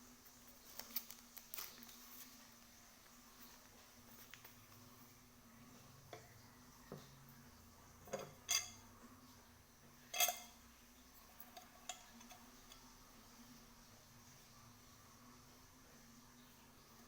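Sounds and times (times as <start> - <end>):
metal cauldron clinking: 8.0 - 8.9, 10.1 - 10.6, 11.4 - 12.9.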